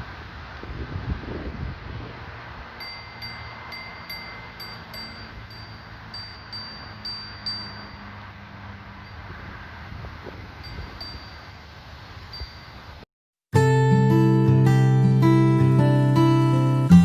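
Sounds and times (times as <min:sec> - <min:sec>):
bright chime tones: 0:02.8 - 0:08.2.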